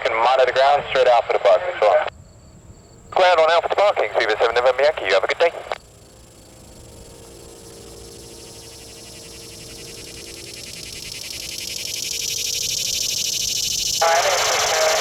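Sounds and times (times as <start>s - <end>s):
jet engine roar: 13.3s - 15.0s.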